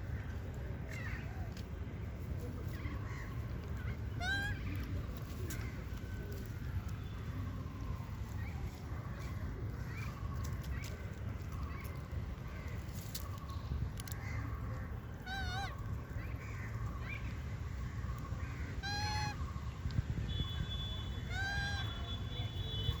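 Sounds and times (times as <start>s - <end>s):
monkey calling: 18.8s - 19.4s.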